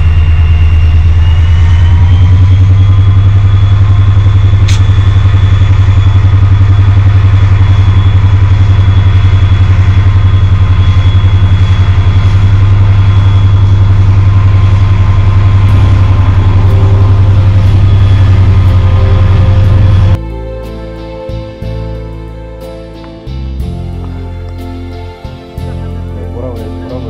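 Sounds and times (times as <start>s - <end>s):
diesel locomotive engine drone: 0.0s - 27.0s
sharp click: 4.6s - 4.9s.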